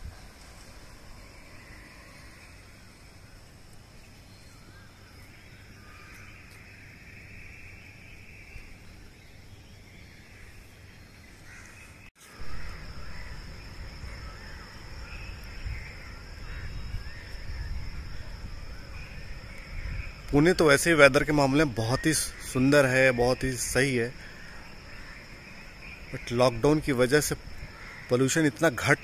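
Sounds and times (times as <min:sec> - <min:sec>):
birds calling: 0:00.0 - 0:29.0.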